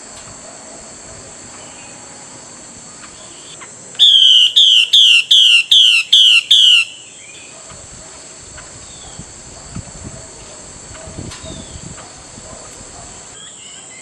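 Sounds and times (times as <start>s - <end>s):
bird whistling descending notes: 4.0s - 7.4s.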